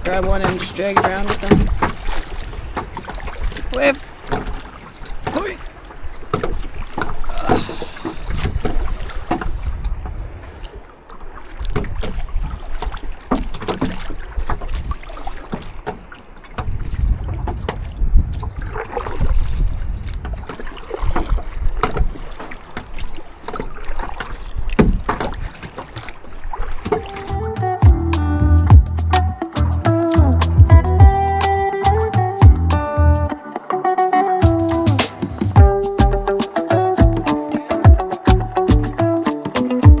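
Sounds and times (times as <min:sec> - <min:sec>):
paddle splashing water: 0:00.0 - 0:27.7, 0:34.5 - 0:39.9
small waves: 0:00.0 - 0:27.8
wind rumbling on microphone: 0:16.6 - 0:22.2.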